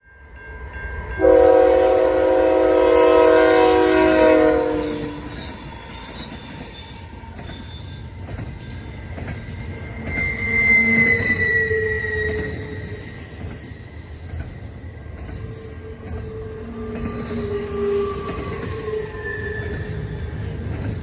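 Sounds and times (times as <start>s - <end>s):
train rumble: 0.2s - 21.0s
locomotive horn chord: 1.2s - 5.3s
wheel squeal: 4.7s - 20.6s.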